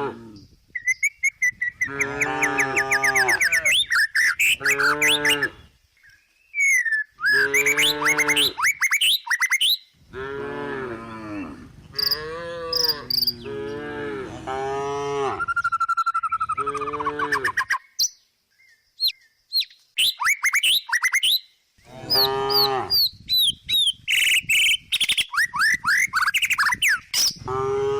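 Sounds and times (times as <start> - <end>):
small birds chirping: 0.3 - 10.0, 11.9 - 13.9, 15.4 - 27.5
cow mooing: 1.9 - 3.8, 4.6 - 5.6, 10.2 - 15.5, 21.9 - 23.0, 27.4 - 27.9.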